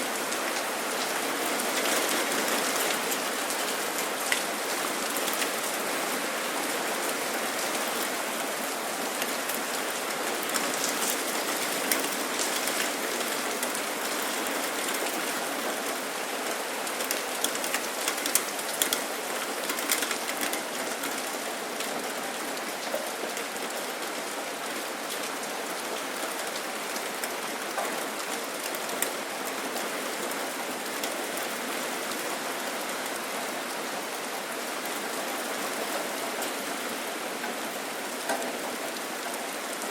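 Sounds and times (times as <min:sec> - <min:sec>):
rain falling: 0:00.0 - 0:39.9
sharp raindrop ticks: 0:17.0 - 0:21.3.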